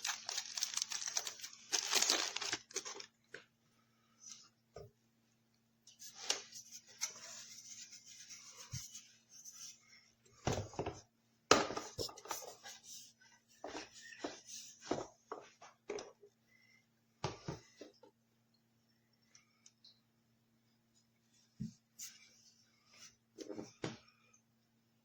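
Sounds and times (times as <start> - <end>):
handling rustling and rubbing: 0.0 - 3.5
faint steady hum: 0.0 - 25.0.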